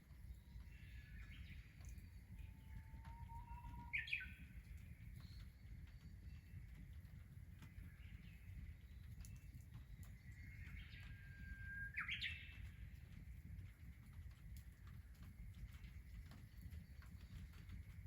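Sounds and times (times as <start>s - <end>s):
bird singing: 0.1s - 13.0s.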